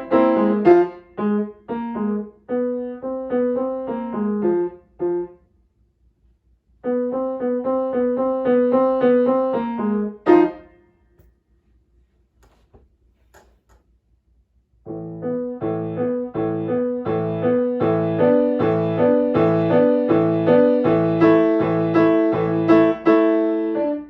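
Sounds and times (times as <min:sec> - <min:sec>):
solo piano: 0:00.0 - 0:05.4, 0:06.8 - 0:10.9, 0:14.9 - 0:24.0.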